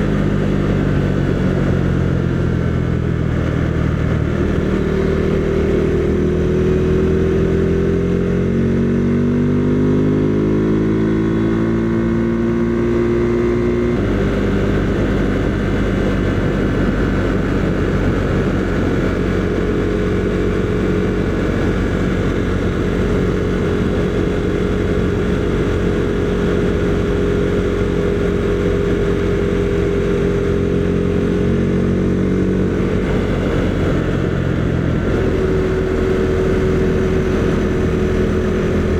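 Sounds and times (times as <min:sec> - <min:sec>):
motorcycle engine running: 0:00.0 - 0:38.9
wind rush: 0:12.2 - 0:38.9.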